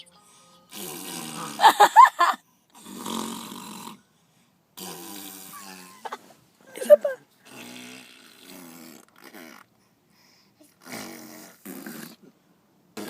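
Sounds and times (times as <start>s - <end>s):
mouth fart noises: 0.7s - 1.9s, 2.8s - 4.0s, 4.8s - 6.2s, 6.8s - 9.7s, 10.7s - 12.4s.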